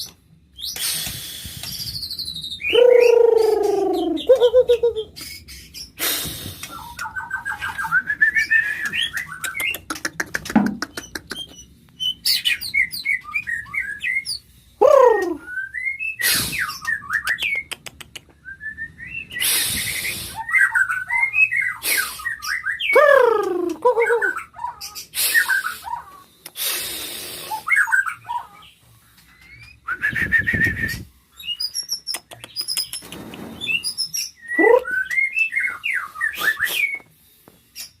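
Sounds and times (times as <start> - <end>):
bird singing whistled phrases: 1.8 - 5.2, 12.0 - 17.6, 33.6 - 37.1.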